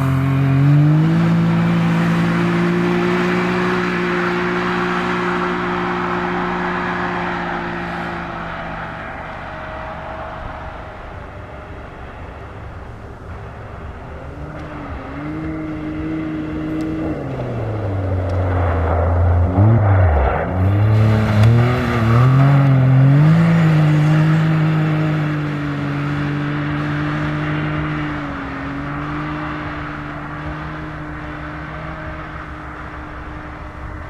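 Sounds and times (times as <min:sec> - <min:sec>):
car engine revving hard: 0:00.0 - 0:11.1, 0:14.3 - 0:33.5.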